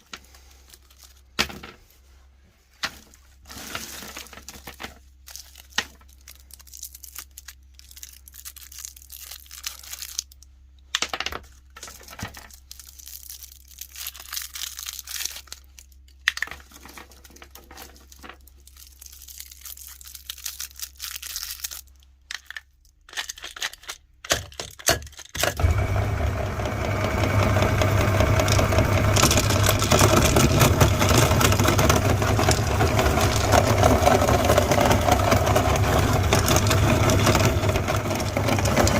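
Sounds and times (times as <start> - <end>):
crackling and crinkling clicks: 2.8 - 38.9
meat grinder grinding candy: 25.2 - 38.9.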